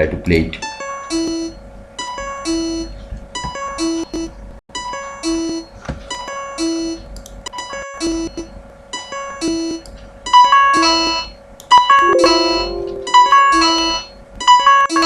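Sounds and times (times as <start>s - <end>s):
high synthesized plucked notes: 12.0s - 13.8s
low held synth note: 12.0s - 13.8s.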